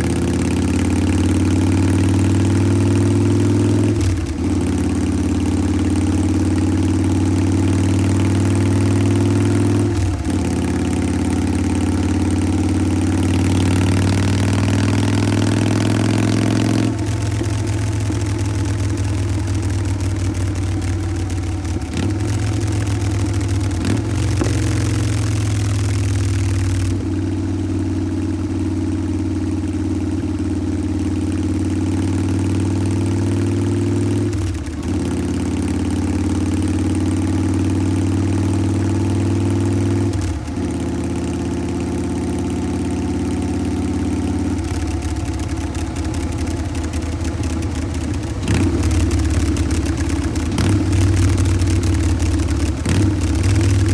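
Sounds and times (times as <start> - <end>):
motorcycle engine idling: 0.0 - 53.9.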